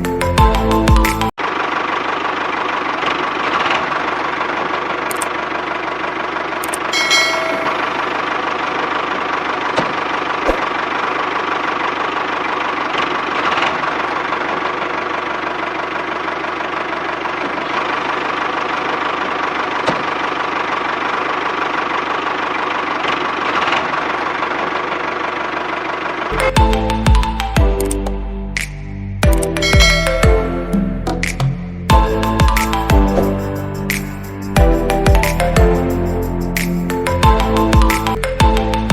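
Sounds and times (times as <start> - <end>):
sharp clicks: 5.1 - 5.3, 36.6 - 37.0.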